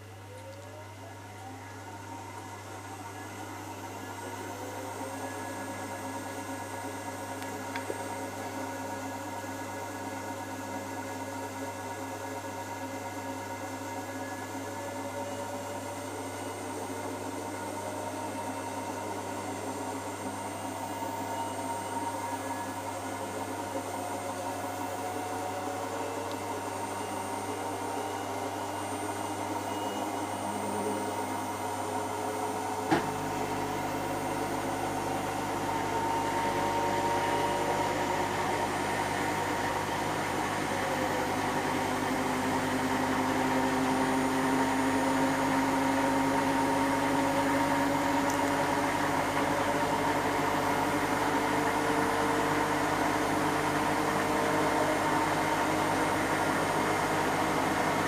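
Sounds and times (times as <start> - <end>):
washing machine spinning with whine: 0.0 - 58.0.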